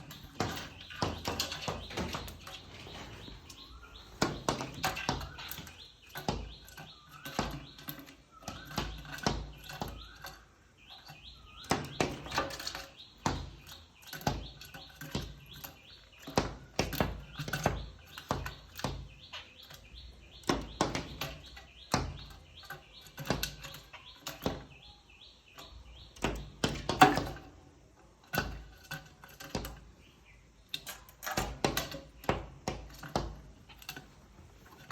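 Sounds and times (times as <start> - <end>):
high repeated bird chirps: 0.0 - 27.3.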